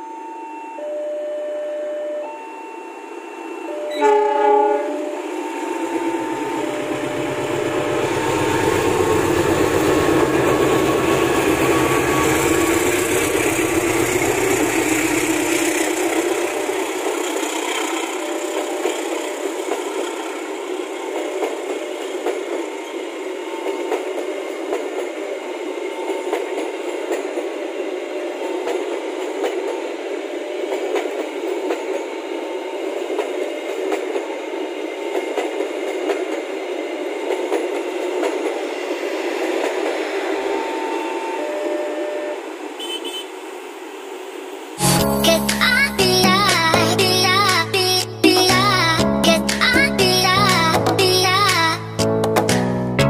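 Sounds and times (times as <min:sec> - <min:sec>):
level crossing alarm chiming: 0:00.0 - 0:09.7, 0:16.2 - 0:19.7, 0:40.3 - 0:42.4
train coaches rolling on rails: 0:02.8 - 0:51.8
locomotive engine passing: 0:03.5 - 0:47.5
train horn blast: 0:03.8 - 0:05.3, 0:40.9 - 0:43.4.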